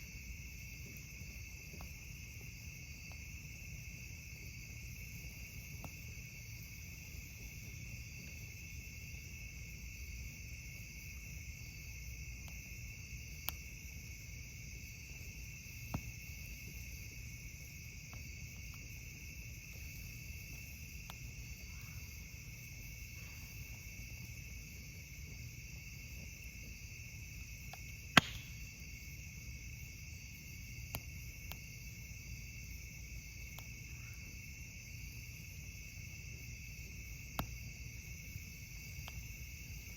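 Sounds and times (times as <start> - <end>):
night insects trilling: 0.0 - 39.9
campfire popping and crackling: 10.4 - 33.8.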